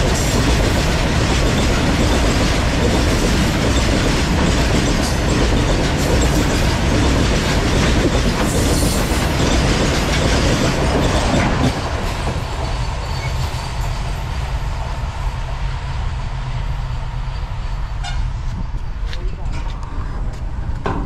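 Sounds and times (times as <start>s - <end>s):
freight train wheels clattering: 0.0s - 14.5s.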